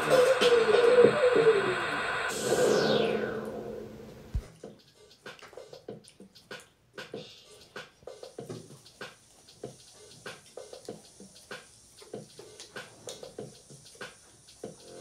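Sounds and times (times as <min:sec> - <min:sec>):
wet chewing smacks and clicks: 0:04.6 - 0:08.0.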